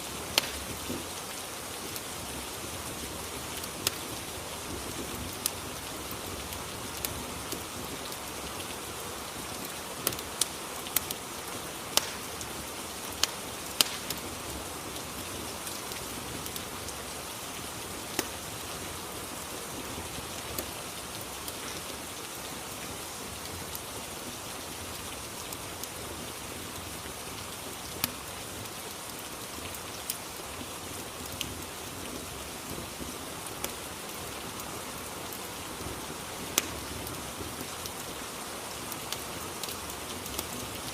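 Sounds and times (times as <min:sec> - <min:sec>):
rain hiss: 0:00.0 - 0:40.9
fireplace crackles: 0:00.1 - 0:22.8, 0:36.4 - 0:38.2, 0:38.8 - 0:40.9.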